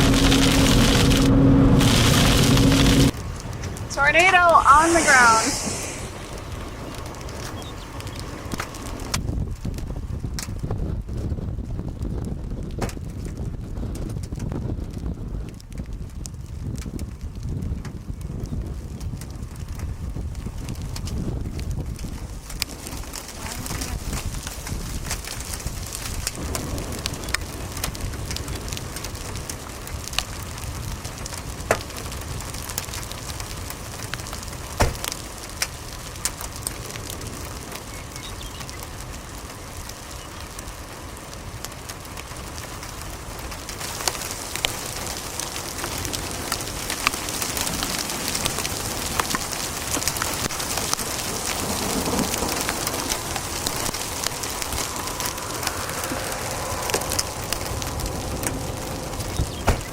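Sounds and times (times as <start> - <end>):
hailstones knocking: 0.0 - 11.4, 15.7 - 59.9
rain and hail hissing: 0.0 - 59.9.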